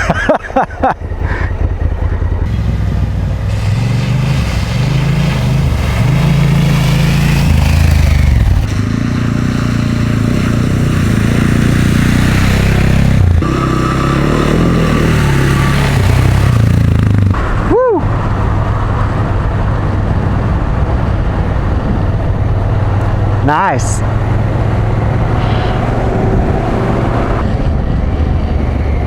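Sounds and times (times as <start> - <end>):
road noise: 0.0 - 29.0
motorcycle engine running: 0.9 - 17.6
wind noise: 15.2 - 29.0.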